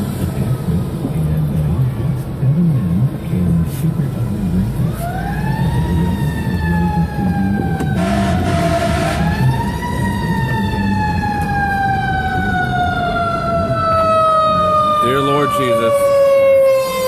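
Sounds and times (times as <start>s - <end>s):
steady low rumble: 0.0s - 4.9s
fire engine siren wailing: 4.5s - 17.0s.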